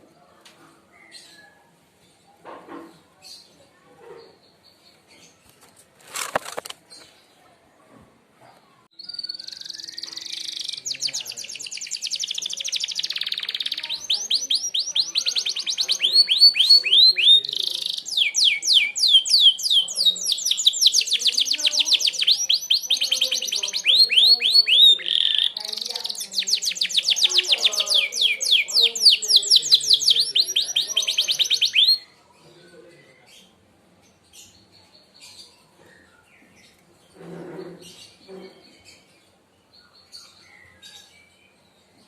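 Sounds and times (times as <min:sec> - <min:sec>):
canary singing rapid trills: 0:09.0 - 0:32.2.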